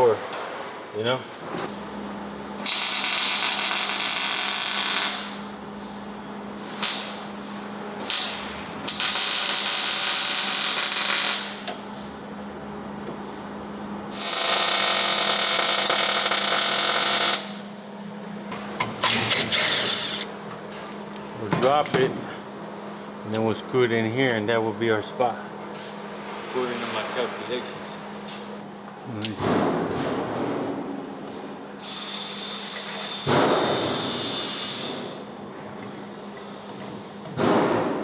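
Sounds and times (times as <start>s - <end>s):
steady shop hum: 0.0s - 38.0s
power tool grinding metal: 19.2s - 20.3s.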